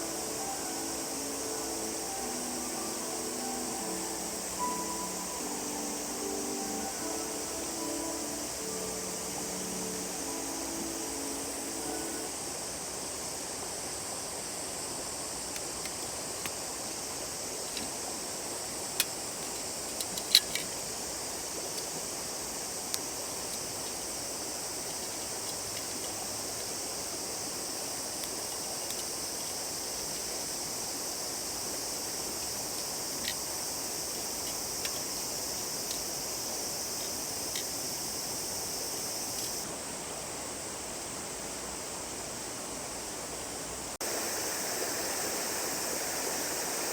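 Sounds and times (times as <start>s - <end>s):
river flowing: 0.0s - 12.4s, 44.0s - 46.9s
high even hiss: 0.0s - 46.9s.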